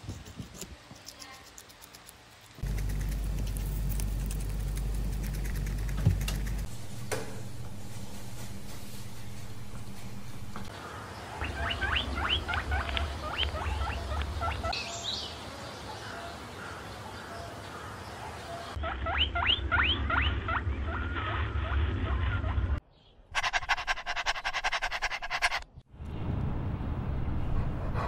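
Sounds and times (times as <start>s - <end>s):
small animal squeaking: 11.4s - 14.7s.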